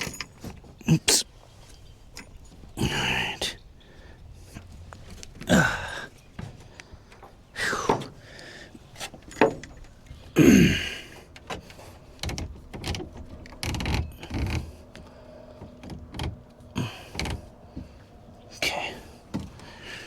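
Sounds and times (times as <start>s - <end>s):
creaks falling in pitch: 12.2s - 14.8s.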